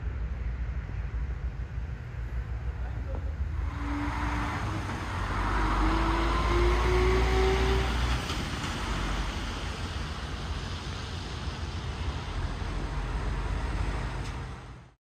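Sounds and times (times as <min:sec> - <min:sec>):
car engine: 0:03.4 - 0:15.0.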